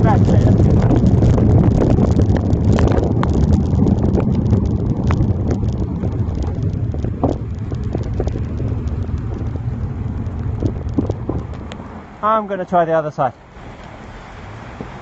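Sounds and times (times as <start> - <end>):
raindrops ticking on phone: 0.0 - 11.8
wind buffeting microphone: 0.0 - 12.2.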